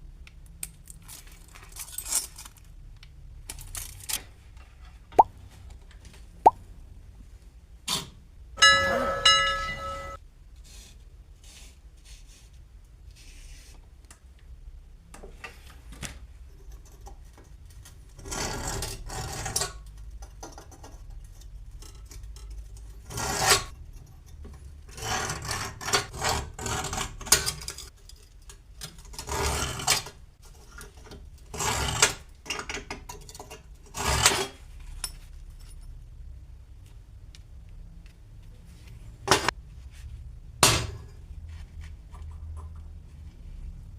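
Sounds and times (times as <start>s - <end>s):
short ringing tone: 8.6s - 10.2s
hand tool scraping on metal: 18.2s - 19.8s, 22.1s - 27.9s, 29.0s - 30.8s, 31.5s - 32.2s, 33.3s - 34.6s.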